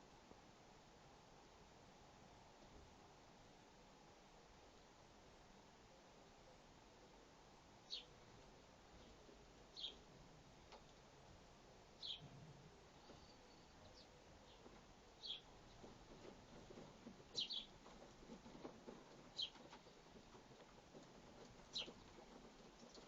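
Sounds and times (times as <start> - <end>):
sparrow chirping: 7.8 - 8.1, 9.7 - 10.0, 12.0 - 12.3, 13.0 - 15.5, 17.3 - 17.8, 19.3 - 19.6, 21.7 - 22.0.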